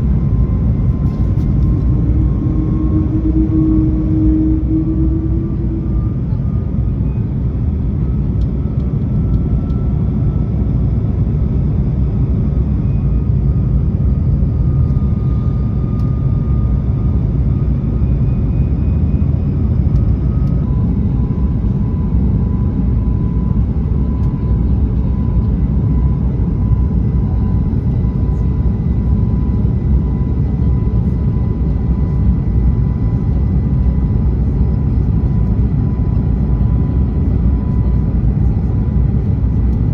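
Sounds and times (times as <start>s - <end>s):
airliner cabin engine rush: 0.0s - 39.9s
faint high whine: 0.2s - 8.2s.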